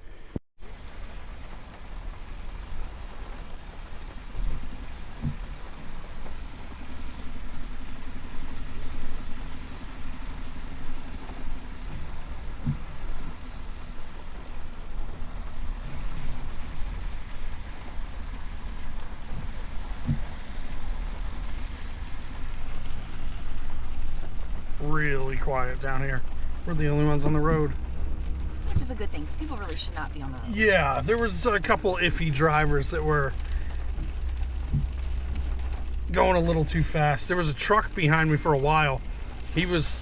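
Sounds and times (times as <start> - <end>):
truck engine and road rumble: 0.0 - 40.0
short low thumps: 22.8 - 37.2.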